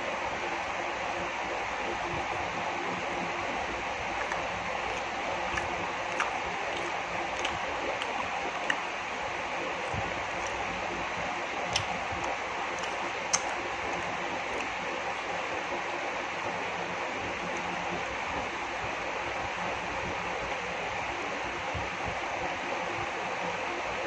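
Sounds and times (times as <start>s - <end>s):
person chewing with mouth clicks: 4.0s - 16.0s.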